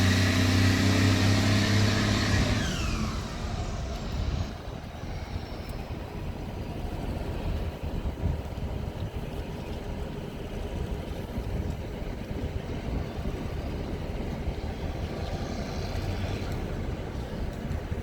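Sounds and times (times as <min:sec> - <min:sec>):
diesel engine exhaust rumble: 0:00.0 - 0:18.0.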